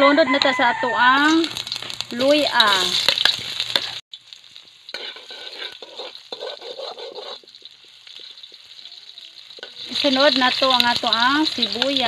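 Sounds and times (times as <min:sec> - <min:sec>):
ginger sizzling in hot oil: 0:00.3 - 0:12.0
metal spoon scraping wok: 0:01.2 - 0:04.0, 0:04.9 - 0:08.7.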